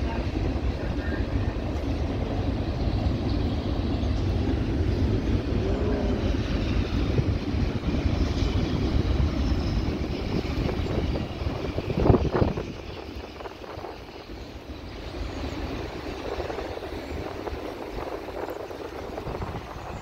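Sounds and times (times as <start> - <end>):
steel wheels rumbling on rail: 0.0 - 20.0.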